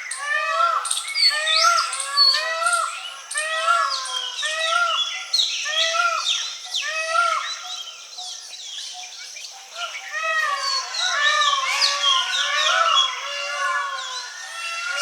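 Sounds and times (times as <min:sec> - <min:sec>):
birds chirping in chorus: 0:00.0 - 0:15.0.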